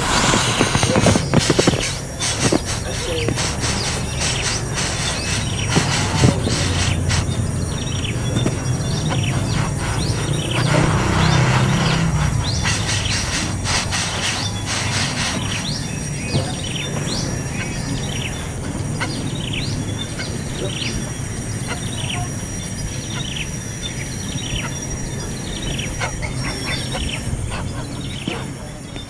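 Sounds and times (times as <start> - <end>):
high thin whine: 0.0 - 29.0
low hum: 0.0 - 29.0
small birds chirping: 0.0 - 29.0.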